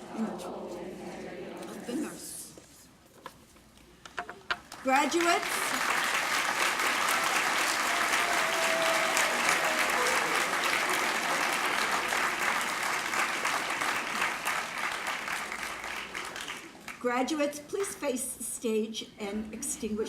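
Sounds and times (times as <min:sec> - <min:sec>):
audience applauding: 0:04.7 - 0:17.0.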